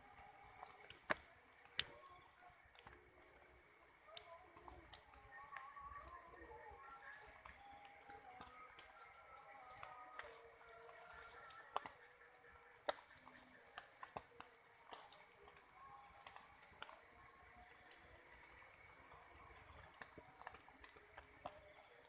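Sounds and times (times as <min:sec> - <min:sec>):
insects calling: 0:00.0 - 0:22.0
water dripping: 0:00.0 - 0:22.0.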